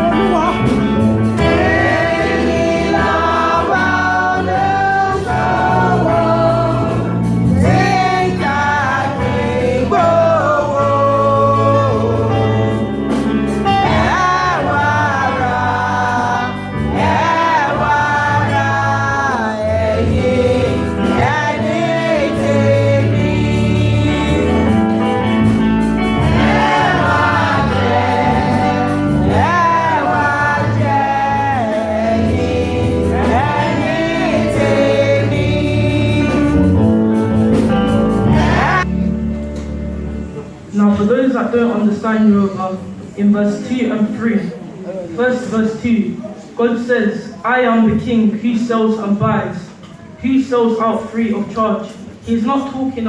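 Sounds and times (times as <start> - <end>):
instrumental backing with bass line: 0.0 - 40.9
choir singing a gospel hymn: 0.0 - 44.5.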